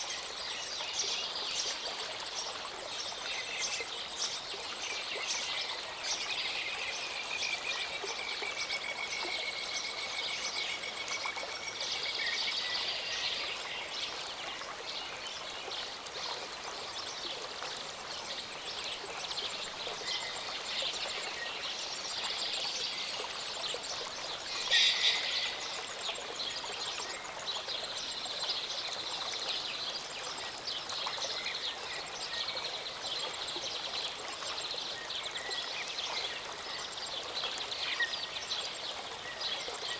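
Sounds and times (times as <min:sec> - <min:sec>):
songbirds singing: 0:00.0 - 0:39.9
stream running: 0:00.0 - 0:39.9.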